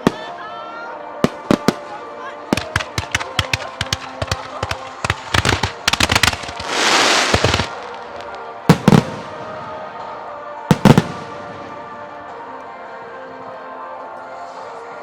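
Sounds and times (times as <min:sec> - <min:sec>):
firework reports: 0:00.0 - 0:11.8
faint music: 0:00.0 - 0:15.0
firework crackling hiss: 0:02.6 - 0:09.4
firework booms: 0:02.6 - 0:09.7.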